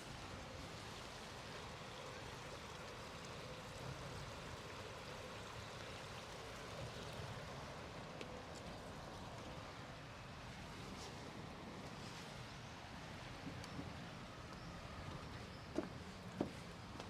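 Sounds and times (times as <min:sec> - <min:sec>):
city ambience rushing hiss: 0:08.8 - 0:17.0.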